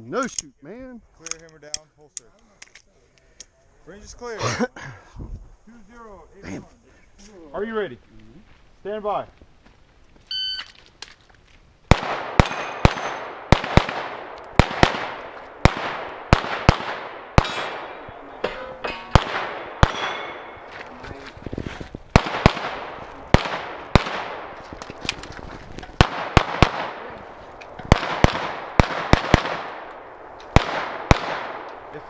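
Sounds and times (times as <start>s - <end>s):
pistol shots: 11.9s - 20.7s, 22.1s - 24.7s, 26.0s - 27.2s, 27.9s - 32.0s.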